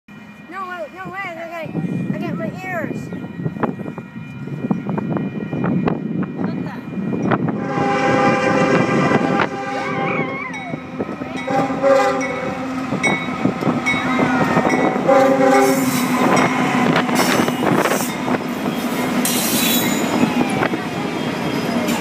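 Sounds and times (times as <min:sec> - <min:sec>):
train horn blasts: 0:07.4 - 0:13.2, 0:14.2 - 0:17.9
locomotive engines running: 0:10.3 - 0:22.0
train wheels clattering and squealing: 0:15.7 - 0:22.0.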